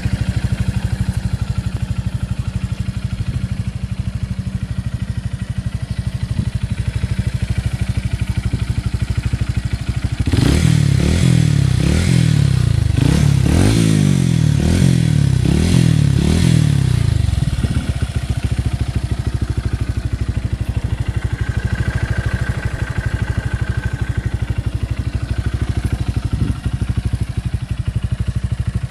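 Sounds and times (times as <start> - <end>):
motorcycle engine idling and revving: 0.0 - 28.9.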